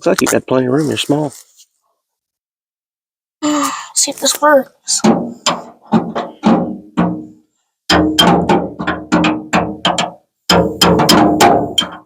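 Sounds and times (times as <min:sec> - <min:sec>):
hammer striking sheet metal: 0:07.9 - 0:12.0.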